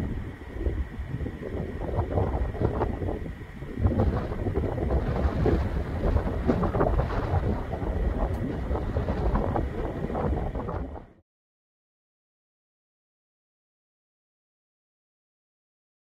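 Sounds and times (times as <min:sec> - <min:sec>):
wind gusting across microphone: 0:00.0 - 0:11.2.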